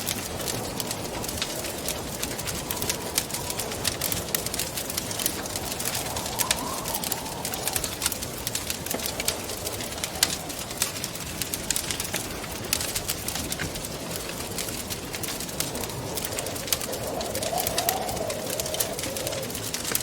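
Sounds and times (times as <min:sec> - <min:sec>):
wind moaning: 0:00.0 - 0:20.0
wood fire crackling and popping: 0:00.0 - 0:20.0
wind rushing: 0:00.2 - 0:11.9, 0:13.3 - 0:20.0.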